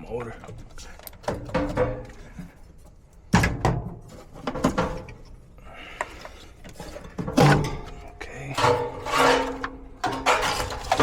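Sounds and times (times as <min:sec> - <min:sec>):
sheet metal knocking and clattering: 0:01.2 - 0:02.1.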